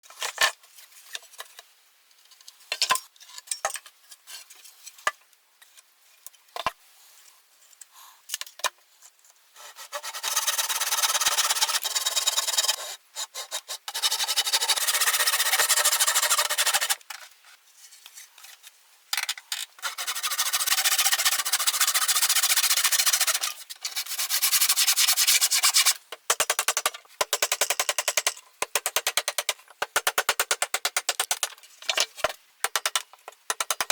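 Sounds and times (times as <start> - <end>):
tool tapping and scraping wood: 25.6 - 33.9.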